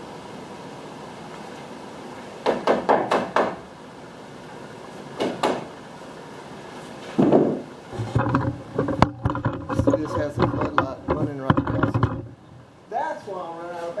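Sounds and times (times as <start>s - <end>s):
nails hammered into wood: 2.4s - 3.6s, 5.2s - 5.7s.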